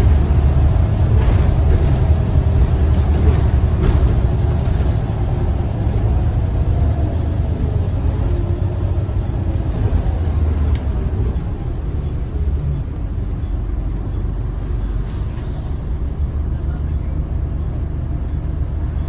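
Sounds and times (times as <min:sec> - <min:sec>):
bus diesel engine rumble: 0:00.0 - 0:19.0
air brakes hiss: 0:14.8 - 0:16.2.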